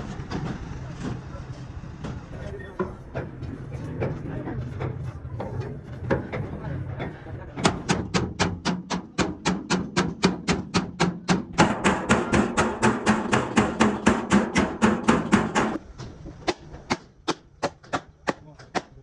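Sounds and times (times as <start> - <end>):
steady low hum: 0.0 - 17.5
hammer blows on sheet metal: 7.6 - 15.8.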